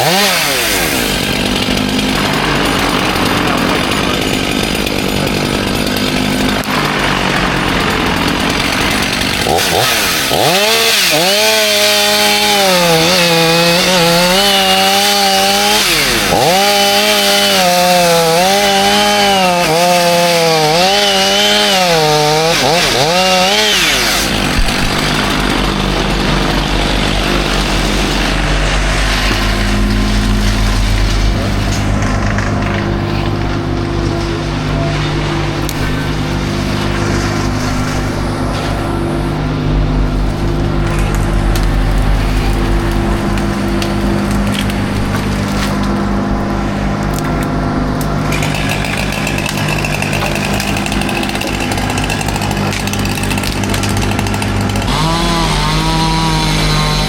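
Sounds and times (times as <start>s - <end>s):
chainsaw cutting wood: 0.0s - 57.0s
low steady engine drone: 0.9s - 10.2s, 23.7s - 57.0s.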